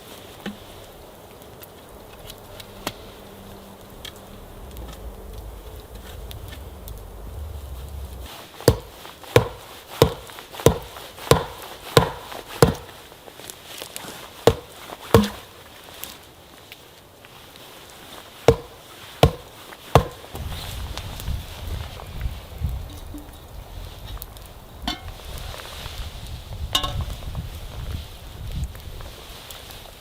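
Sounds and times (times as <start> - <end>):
axe chopping wood: 8.6 - 13.0, 14.4 - 15.5, 18.5 - 20.3.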